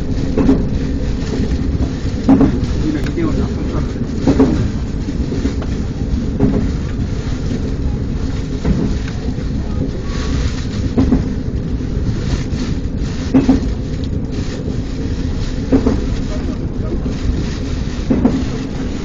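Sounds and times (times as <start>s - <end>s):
train rumbling over bridge: 0.0s - 19.0s
train wheel knocks: 0.2s - 7.7s, 8.5s - 9.3s, 10.8s - 11.5s, 13.3s - 13.9s, 15.5s - 16.3s, 17.3s - 19.0s.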